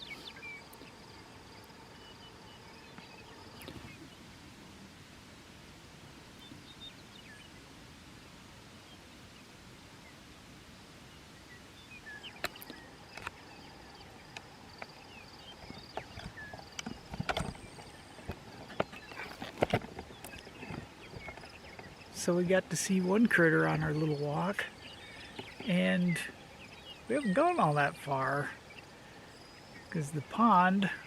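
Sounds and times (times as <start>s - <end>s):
faint bird chirps: 0.0s - 4.3s
faint wind hiss: 0.0s - 31.0s
footsteps: 15.6s - 21.5s.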